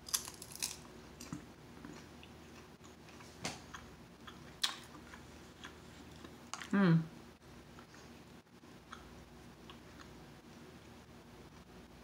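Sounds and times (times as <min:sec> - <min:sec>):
crunchy chewing: 0:00.0 - 0:06.7.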